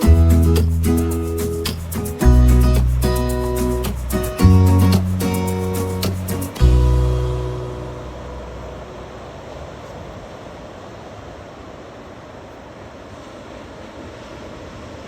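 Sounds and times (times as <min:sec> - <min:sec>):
ocean surf rushing: 0:00.0 - 0:15.0
music chord: 0:02.2 - 0:09.4.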